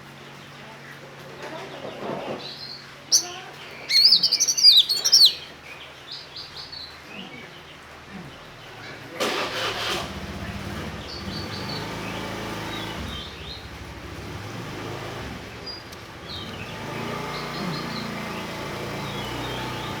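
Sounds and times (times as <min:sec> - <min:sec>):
songbird chirping: 0:00.0 - 0:20.0
low engine hum: 0:09.6 - 0:20.0.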